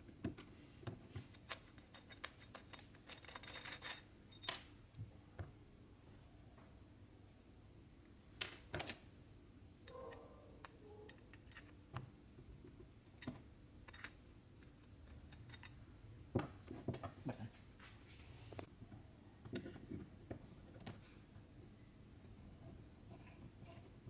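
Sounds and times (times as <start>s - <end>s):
small metal parts clinking: 1.3s - 4.6s, 8.8s - 9.3s, 11.0s - 11.8s, 13.1s - 15.8s.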